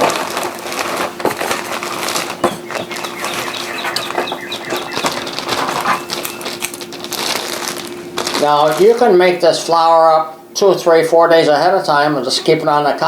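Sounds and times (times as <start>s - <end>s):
plastic bag crinkling: 0.0s - 9.9s
steady low hum: 0.0s - 13.0s
short high squeaks: 2.4s - 6.8s.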